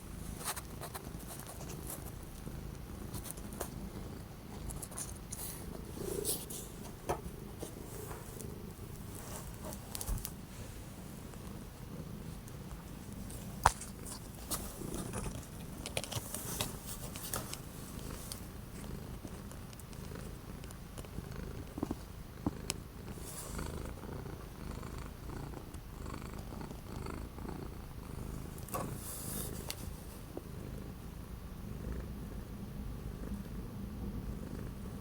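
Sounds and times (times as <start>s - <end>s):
cat purring: 0.0s - 35.0s
rustles: 12.3s - 19.9s.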